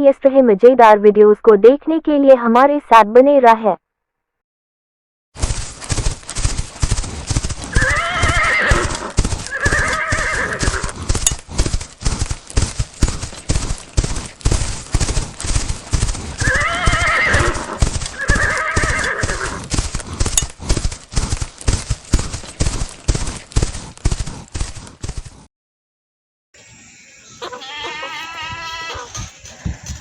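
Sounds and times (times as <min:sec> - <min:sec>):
horse hooves clip-clopping: 0:05.4 - 0:25.5, 0:27.4 - 0:30.0
horse whinnying: 0:07.7 - 0:11.0, 0:16.4 - 0:19.7, 0:27.4 - 0:29.8.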